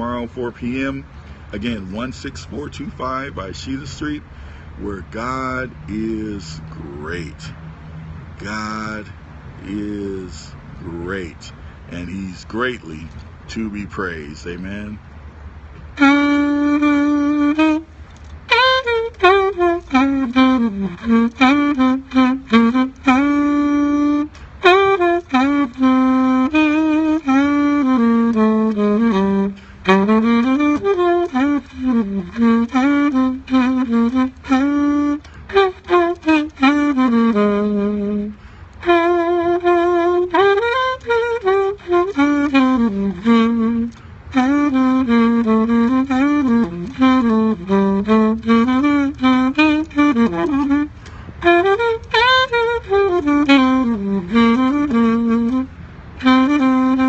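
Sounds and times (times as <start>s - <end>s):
saxophone playing slow hymn melody: 0.0s - 13.2s, 14.4s - 57.0s
player breathing: 4.3s - 4.8s, 51.0s - 51.4s.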